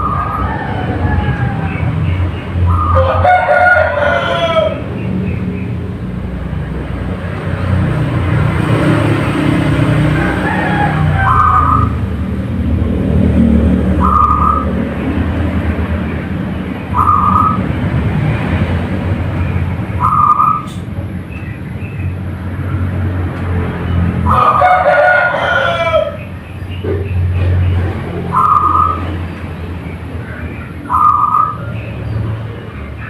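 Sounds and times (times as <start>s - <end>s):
rooster crowing: 0.0s - 2.0s, 2.7s - 4.9s, 9.7s - 12.1s, 24.2s - 26.3s.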